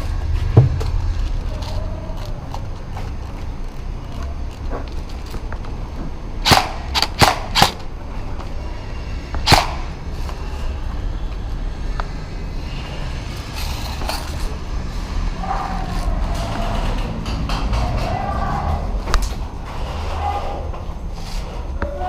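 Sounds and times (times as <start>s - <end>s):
low rumble: 0.0s - 3.8s
airsoft gun shots: 6.4s - 7.8s, 9.4s - 10.0s.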